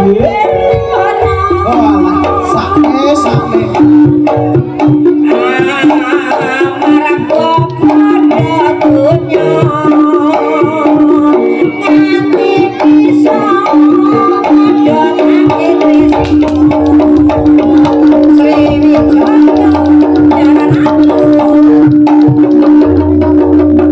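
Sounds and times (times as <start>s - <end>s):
wavering melody line: 0.0s - 6.2s
hand drums rhythm: 0.0s - 23.9s.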